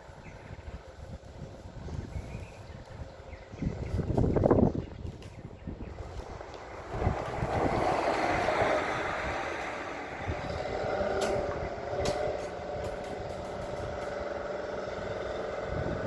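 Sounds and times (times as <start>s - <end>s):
drill rig engine running: 7.0s - 16.0s.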